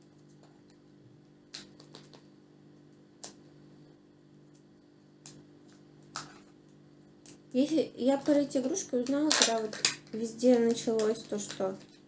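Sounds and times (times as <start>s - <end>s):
faint low hum: 0.0s - 12.0s
small objects clicking: 7.2s - 12.0s.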